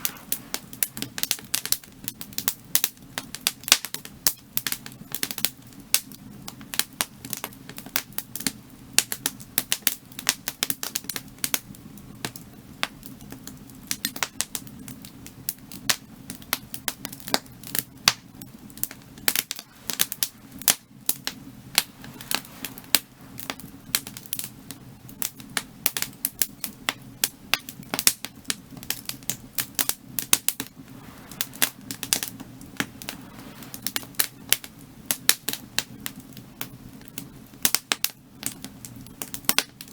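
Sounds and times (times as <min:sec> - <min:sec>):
firewood crackling: 0:00.0 - 0:39.9
low hum: 0:18.4 - 0:25.1, 0:30.4 - 0:35.0.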